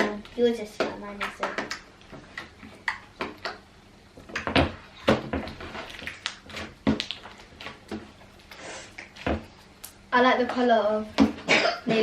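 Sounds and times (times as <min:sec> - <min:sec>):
slime clicking and popping: 0:05.9 - 0:08.0.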